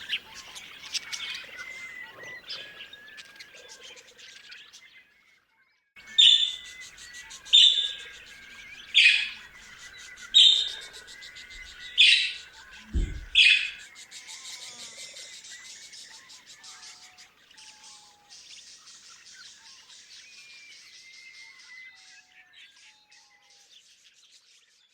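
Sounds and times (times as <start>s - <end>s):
budgie flock chattering: 0.0s - 4.2s, 6.0s - 17.2s
budgerigar harsh calls: 6.0s - 13.8s
low thump: 12.8s - 13.8s.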